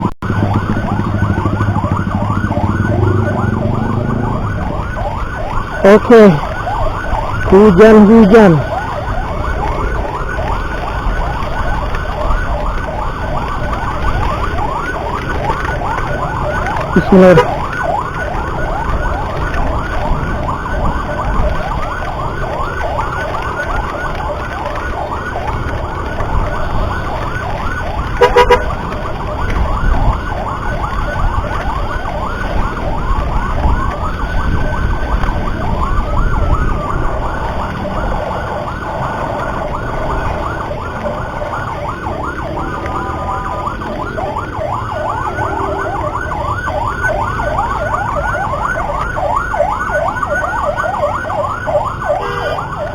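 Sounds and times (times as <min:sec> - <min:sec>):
emergency siren yelping: 0:00.0 - 0:52.9
wind and road noise rumble: 0:00.0 - 0:52.9
horn blast: 0:28.2 - 0:28.7, 0:52.2 - 0:52.7.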